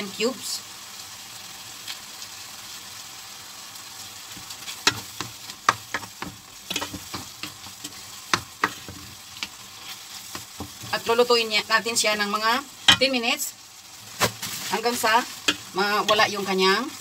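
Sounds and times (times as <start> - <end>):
chicken sizzling in oil: 0.0 - 17.0
spoon scraping a pan: 4.3 - 11.2, 14.2 - 16.5.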